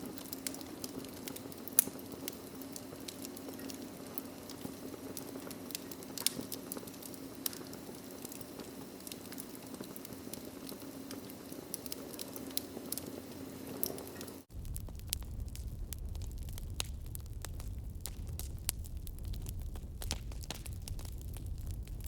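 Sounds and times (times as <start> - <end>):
fire crackling and popping: 0.0 - 22.0
low hum: 14.5 - 22.0.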